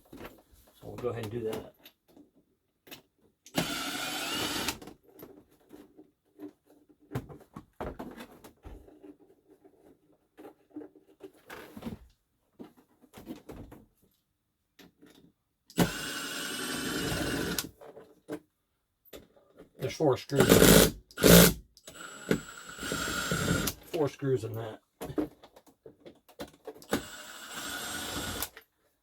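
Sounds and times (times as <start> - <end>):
cordless power driver whirring: 3.5 - 4.8, 15.7 - 17.7, 20.4 - 23.8, 26.8 - 28.5.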